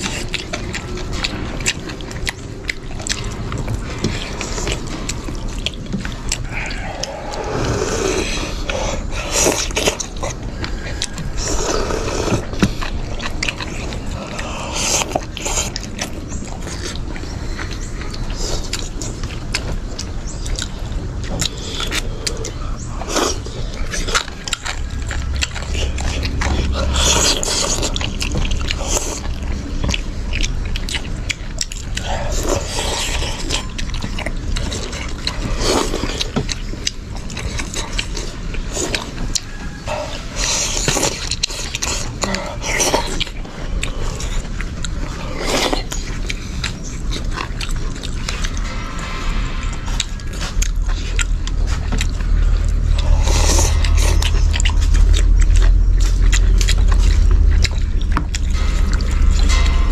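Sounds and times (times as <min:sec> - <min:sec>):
chewing: 0:00.0 - 0:59.9.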